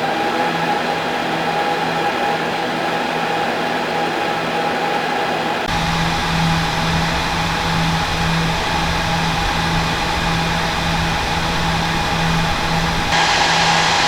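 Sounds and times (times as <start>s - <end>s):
cooling fans rushing: 5.7s - 14.0s
low hum: 5.7s - 14.0s.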